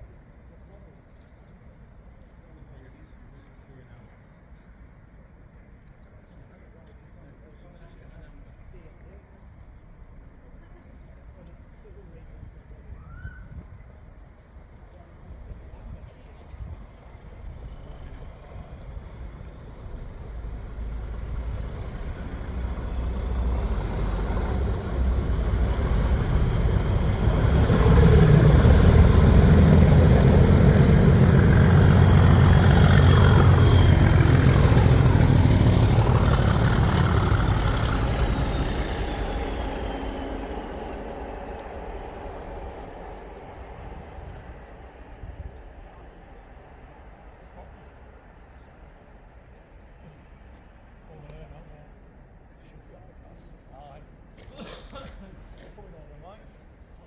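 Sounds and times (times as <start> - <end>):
diesel train passing: 14.2 - 54.2
high falling whine: 18.8 - 47.9.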